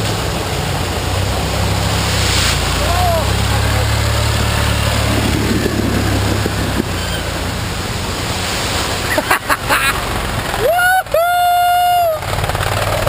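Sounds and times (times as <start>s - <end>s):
vehicle engine hum: 0.0s - 13.0s
wind noise on microphone: 4.6s - 7.5s.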